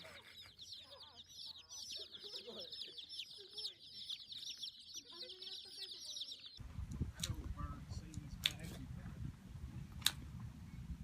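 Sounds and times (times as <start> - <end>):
chickens clucking: 0.0 - 6.6
chicks peeping: 0.0 - 6.6.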